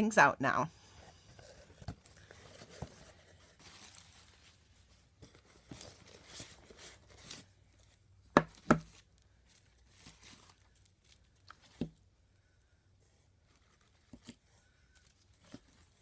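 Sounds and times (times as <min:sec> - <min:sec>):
packaging rustling: 0:01.3 - 0:08.0.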